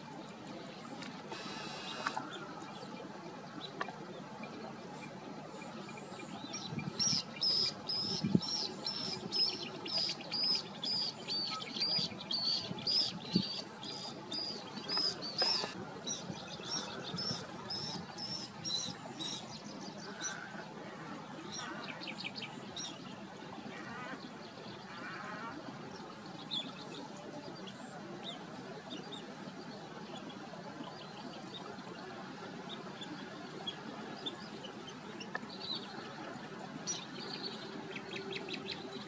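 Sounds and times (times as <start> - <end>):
steady background hiss: 0.0 - 39.0.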